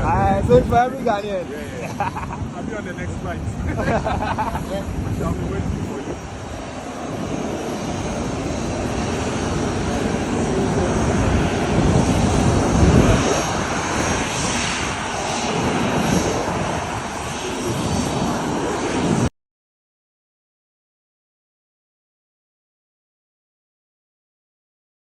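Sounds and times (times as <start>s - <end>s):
jet engines roaring: 0.0s - 19.3s.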